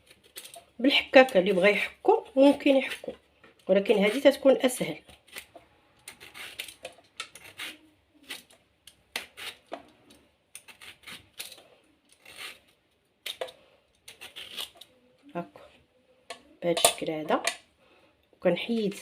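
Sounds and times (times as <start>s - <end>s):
knife cutting lemon peel: 6.1s - 9.8s.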